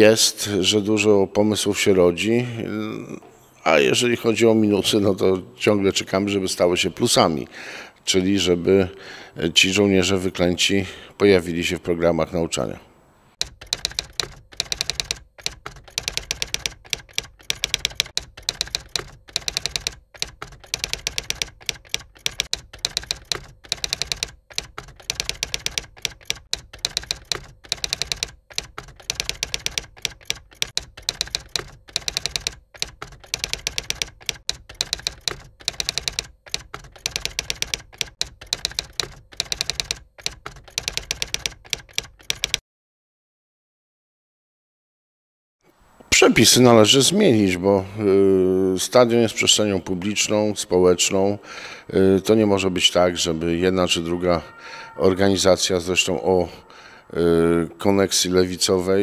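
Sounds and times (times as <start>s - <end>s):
typewriter keys clacking: 13.4s - 42.6s.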